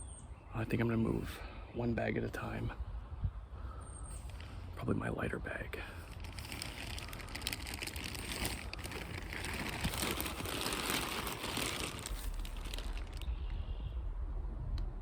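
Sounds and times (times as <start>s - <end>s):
footsteps crunching through dry leaves: 6.0s - 13.3s.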